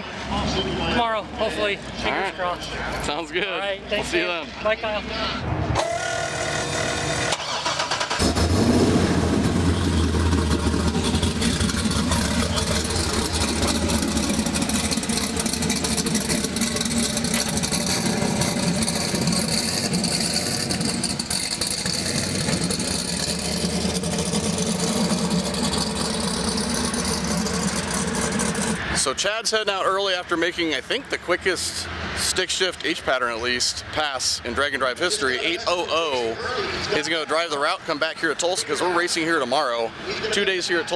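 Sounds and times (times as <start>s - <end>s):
car engine idling: 7.3s - 29.1s.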